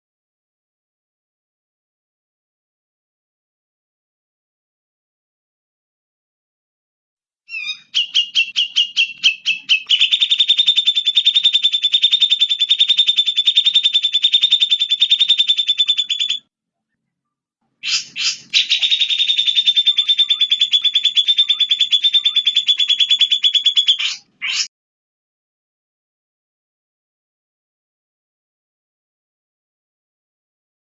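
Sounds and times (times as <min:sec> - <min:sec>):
songbird trilling: 0:07.5 - 0:16.4, 0:17.8 - 0:24.7.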